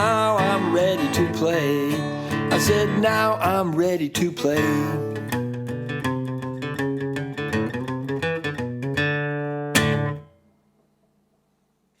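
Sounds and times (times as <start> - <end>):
guitar picked notes: 4.4 - 10.5.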